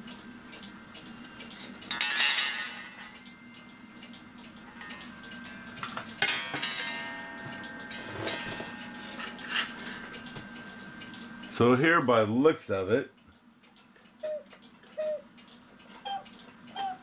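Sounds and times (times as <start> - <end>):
low steady hum: 0.0 - 17.0
metal clock parts clinking: 1.4 - 11.2
metallic ring: 1.9 - 3.6, 4.7 - 11.0.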